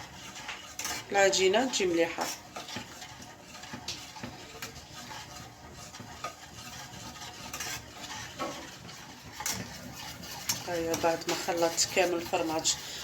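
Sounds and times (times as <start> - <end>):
utensil scraping in a pan: 0.0 - 13.0
utensil clicking against pan: 0.4 - 4.8, 7.4 - 12.8.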